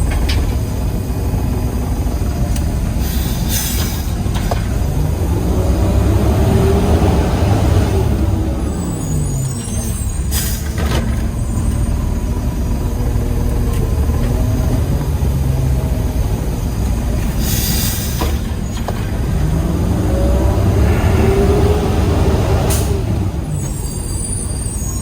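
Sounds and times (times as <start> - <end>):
truck diesel engine running: 0.0 - 24.9
air brakes hissing: 2.5 - 4.8, 7.9 - 12.0, 17.2 - 19.1, 21.2 - 25.0.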